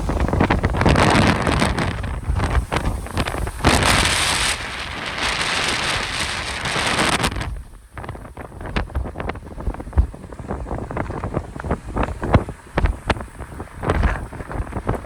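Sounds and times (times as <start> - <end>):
wind gusting on microphone: 0.0 - 15.0.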